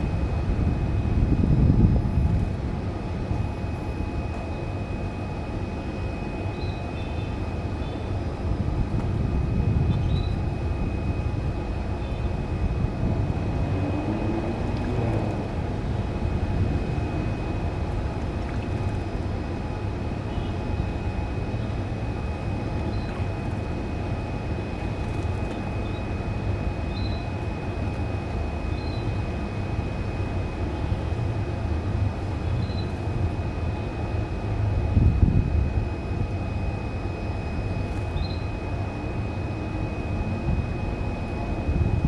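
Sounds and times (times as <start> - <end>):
low background rumble: 0.0 - 42.0
canary chirps: 26.9 - 27.2.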